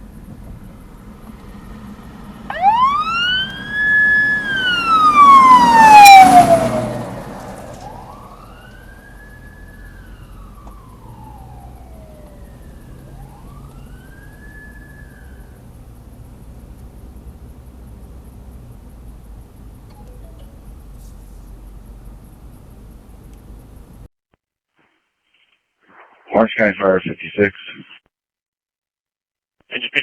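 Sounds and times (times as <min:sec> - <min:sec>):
fire truck siren wailing: 0:00.9 - 0:15.8.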